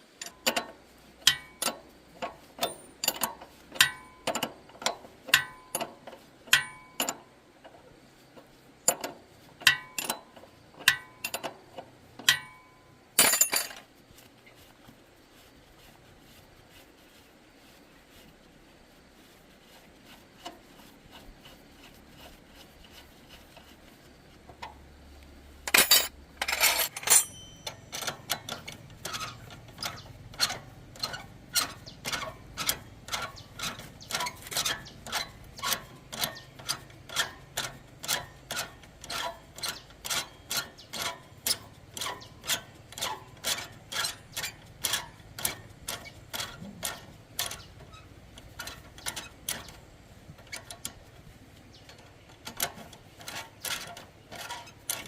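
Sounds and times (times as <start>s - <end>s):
metal clatter: 0.2s - 7.3s, 8.8s - 13.9s, 25.6s - 51.1s, 51.8s - 55.0s.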